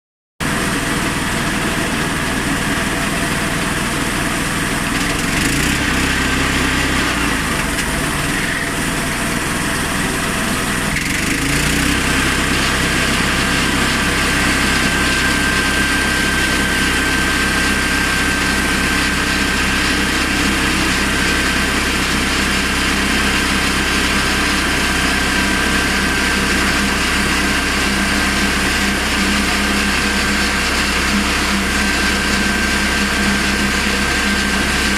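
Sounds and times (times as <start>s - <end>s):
petrol engine running: 0.4s - 34.9s
steady high whine: 12.4s - 34.8s.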